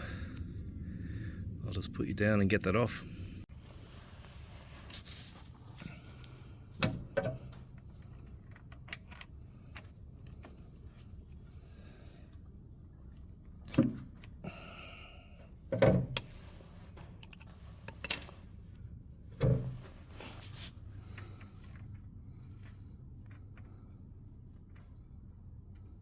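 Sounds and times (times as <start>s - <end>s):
spanner knocking and clanking: 6.8s - 9.3s, 15.7s - 16.3s.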